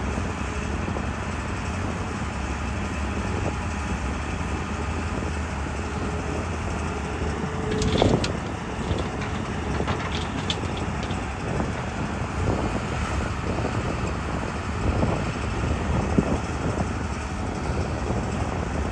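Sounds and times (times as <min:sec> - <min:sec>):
backhoe diesel engine running: 0:05.8 - 0:13.8
metal clanks: 0:07.5 - 0:12.6.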